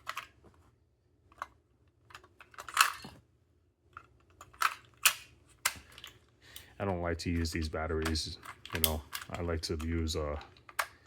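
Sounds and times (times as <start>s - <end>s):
plastic clicks of batteries: 8.0s - 11.0s.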